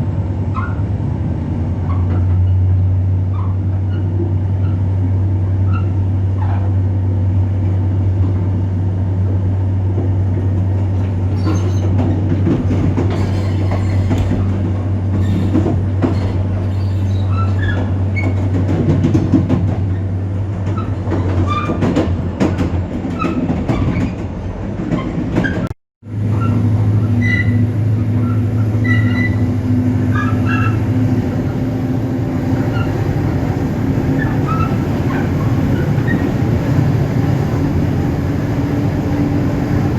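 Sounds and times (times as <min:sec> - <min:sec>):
rail clicks: 0:09.8 - 0:36.9
wheel squeals: 0:11.0 - 0:12.1, 0:13.0 - 0:18.4, 0:26.3 - 0:29.5, 0:30.1 - 0:30.8, 0:34.2 - 0:36.3.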